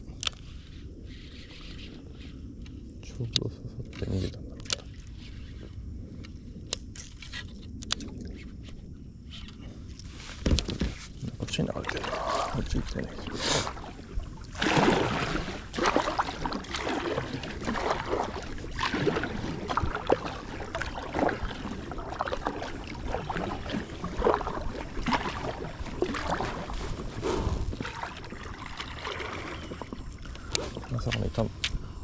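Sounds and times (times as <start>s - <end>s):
paddle strokes: 0.3s - 2.8s, 7.0s - 31.8s
water splashing against packraft: 9.4s - 31.8s.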